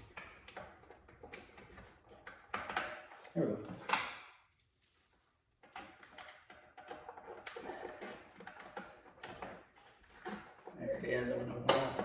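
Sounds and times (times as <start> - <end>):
clicks and knocks of tools handled: 5.6 - 10.7.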